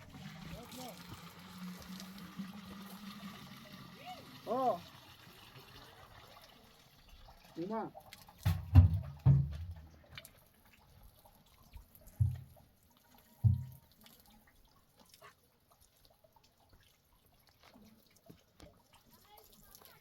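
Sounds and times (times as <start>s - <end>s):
liquid dripping and trickling: 0.0s - 20.0s
dull low thumps: 8.5s - 10.0s, 12.2s - 12.6s, 13.5s - 13.8s.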